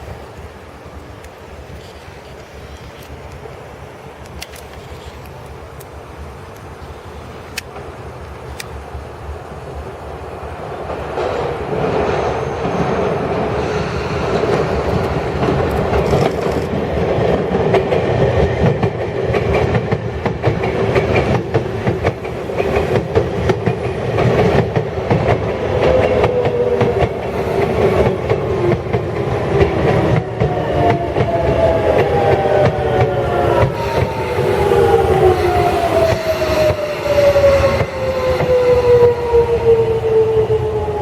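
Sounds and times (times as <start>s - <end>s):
train wheels clicking over rail joints: 1.1s - 3.5s, 11.2s - 39.3s
train motor whine: 30.4s - 41.0s.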